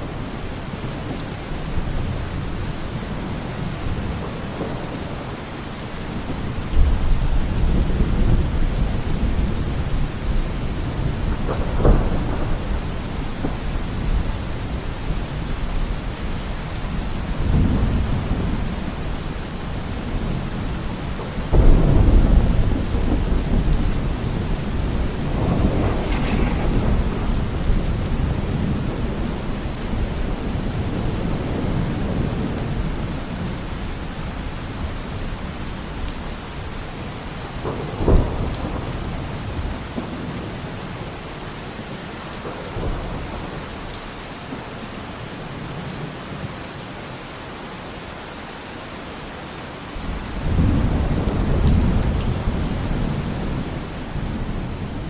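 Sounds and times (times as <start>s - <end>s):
heavy rain: 0.0s - 55.0s
rolling thunder: 0.8s - 34.5s, 35.1s - 41.0s, 50.0s - 55.0s
sharp thunder crack: 21.5s - 31.6s.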